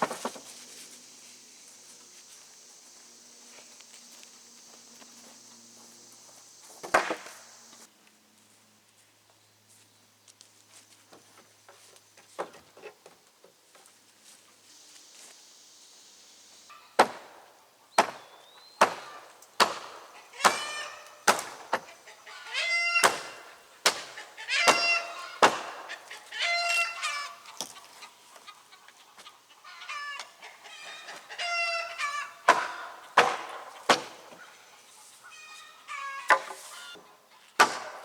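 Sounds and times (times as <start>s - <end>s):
hammer blows on wood: 18.0s - 21.8s, 23.0s - 25.9s
nails squealing pried out: 20.4s - 23.5s, 24.1s - 25.7s.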